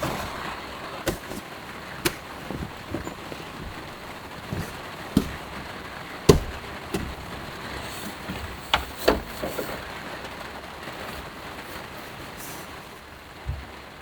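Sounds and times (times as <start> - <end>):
sharp knocks: 0.0 - 9.7
heavy rain on a van: 0.0 - 14.0.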